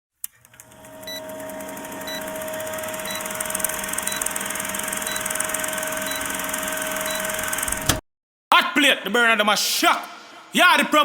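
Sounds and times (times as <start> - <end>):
electronic hum: 0.5 - 7.9.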